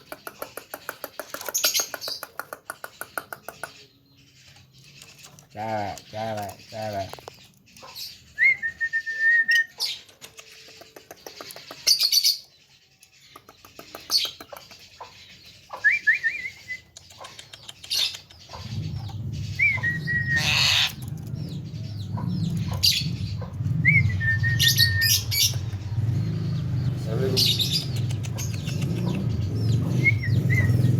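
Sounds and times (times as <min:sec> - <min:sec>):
bird clicks and harsh chattering: 0:00.0 - 0:08.0, 0:09.6 - 0:30.9
bird whistles: 0:08.3 - 0:09.8, 0:15.8 - 0:17.0, 0:19.5 - 0:21.0, 0:23.8 - 0:25.6, 0:29.8 - 0:30.9.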